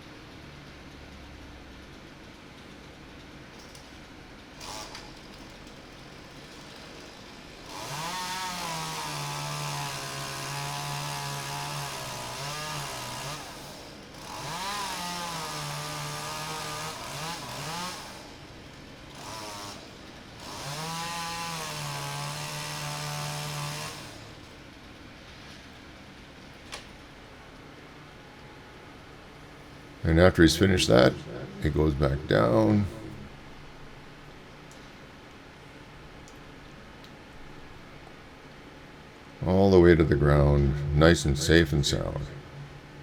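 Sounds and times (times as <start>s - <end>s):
small chainsaw revving: 4.6s - 5.2s, 6.3s - 18.4s, 19.1s - 24.5s.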